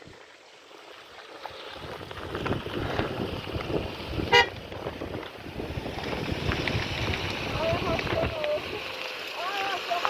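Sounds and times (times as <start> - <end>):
wind buffeting microphone: 1.6 - 8.9.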